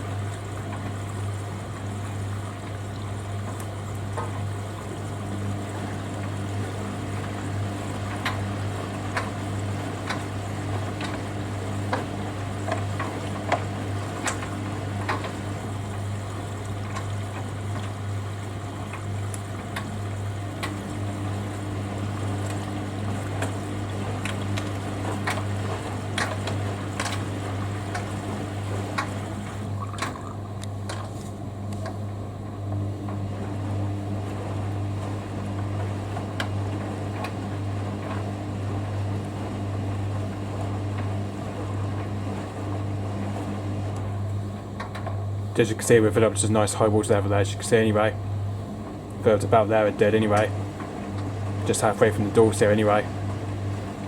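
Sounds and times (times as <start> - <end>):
water splashing into drum: 0.0 - 31.4
washing machine clicks: 0.0 - 54.0.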